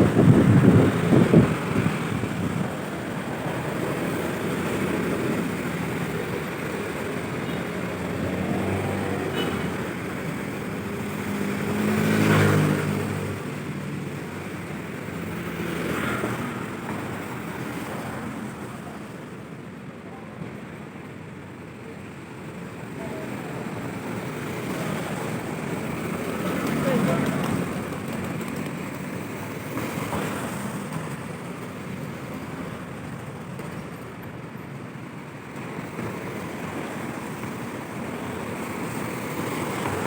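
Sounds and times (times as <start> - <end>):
wind buffeting microphone: 0.0 - 4.4
street traffic noise: 0.0 - 40.0
vehicle passing: 7.8 - 10.0, 11.0 - 13.6, 24.8 - 28.8.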